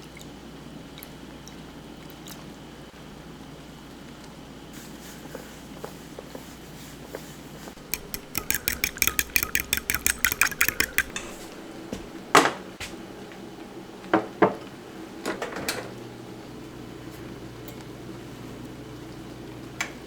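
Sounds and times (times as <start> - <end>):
utensil beating against bowl: 7.8 - 11.7
dishes and cutlery clinking: 7.8 - 12.1.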